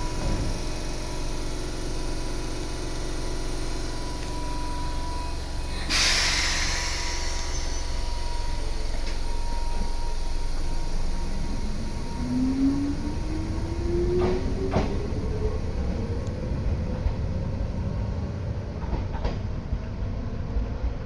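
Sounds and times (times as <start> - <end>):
train interior rumble: 0.0 - 21.0
compressed air hiss: 5.7 - 9.4.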